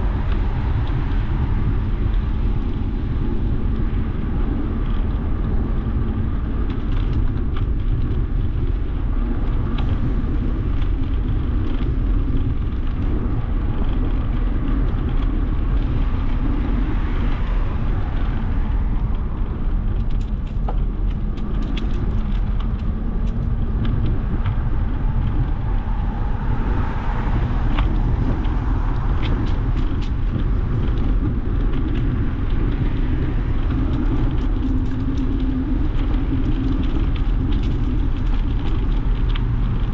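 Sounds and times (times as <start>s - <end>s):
bicycle road rumble: 0.0s - 39.9s
wind noise: 0.0s - 39.9s
car traffic: 16.4s - 32.3s
light ticks and rattles: 18.2s - 26.1s, 27.2s - 39.9s.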